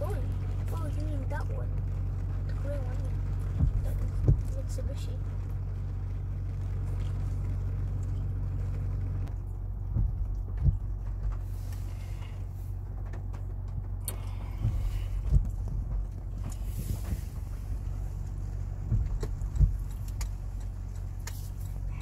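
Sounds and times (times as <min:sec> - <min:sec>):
vehicle engine running: 0:00.0 - 0:22.0
short knocks: 0:03.5 - 0:04.6, 0:09.9 - 0:11.4.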